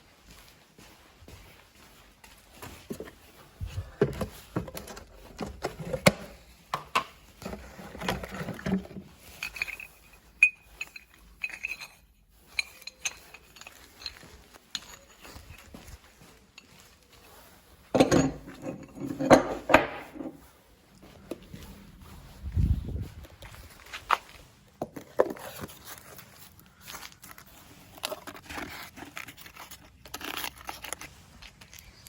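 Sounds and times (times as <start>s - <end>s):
metal objects clattering: 4.0s - 15.7s, 18.0s - 20.4s.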